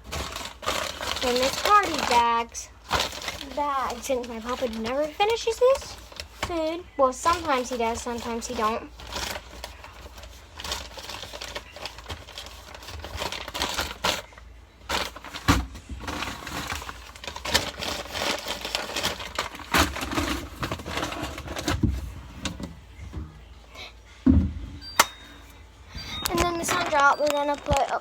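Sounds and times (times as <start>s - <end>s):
plastic rustling and crinkling: 0.0s - 23.2s, 24.8s - 28.0s
items knocking on shelves: 14.9s - 16.8s, 19.4s - 23.4s, 24.2s - 25.4s.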